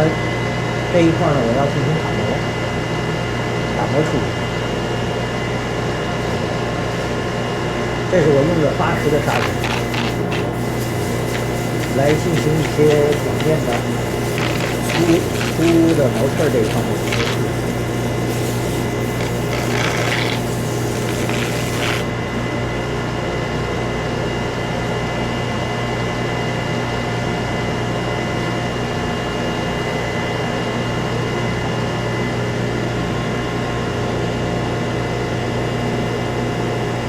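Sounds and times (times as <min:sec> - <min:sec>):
high hiss: 0:08.8 - 0:22.2
wood lathe humming: 0:08.8 - 0:22.2
sandpaper sanding wood: 0:08.9 - 0:22.2.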